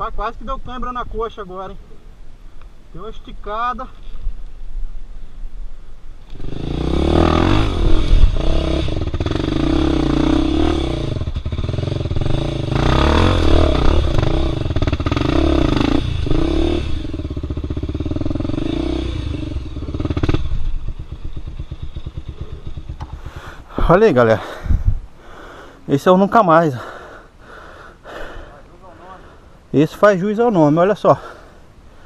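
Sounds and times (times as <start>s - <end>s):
motorcycle engine revving: 6.2s - 24.5s.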